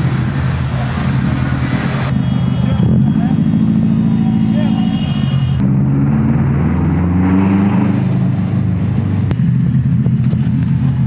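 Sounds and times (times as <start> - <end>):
car engine running: 8.7 - 11.0.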